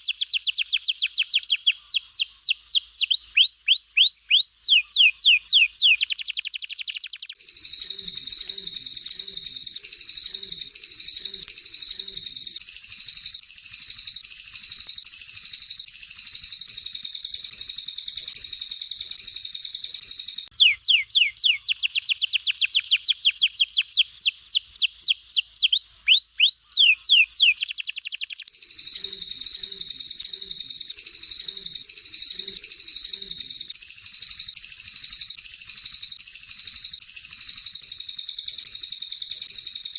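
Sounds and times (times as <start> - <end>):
high-pitched bird trilling: 0.0 - 13.4, 20.0 - 33.8
canary song: 0.0 - 39.9
downward-sweeping whistles: 0.0 - 39.9.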